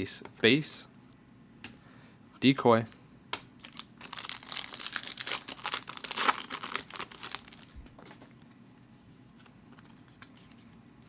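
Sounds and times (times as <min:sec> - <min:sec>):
wrapper tearing and crinkling: 0:03.6 - 0:08.2.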